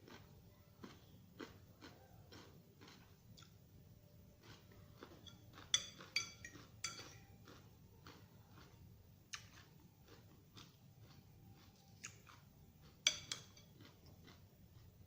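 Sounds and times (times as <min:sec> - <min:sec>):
cutlery clinking against a dish: 0:05.2 - 0:07.4, 0:13.0 - 0:13.8.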